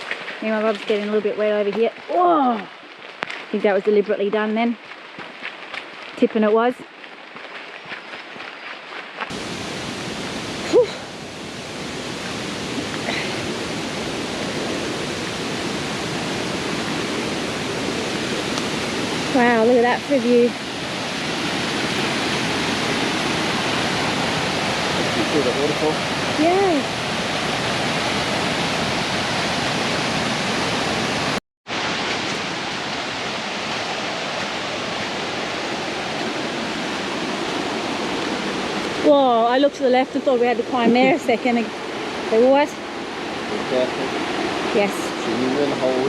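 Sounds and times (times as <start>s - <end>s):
waterfall rushing: 9.2s - 46.0s.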